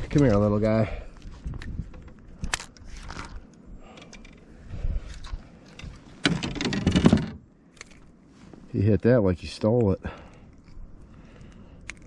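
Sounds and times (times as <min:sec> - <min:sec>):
fishing gear clicks and scrapes: 0:01.1 - 0:07.0, 0:07.7 - 0:08.2, 0:09.7 - 0:12.0.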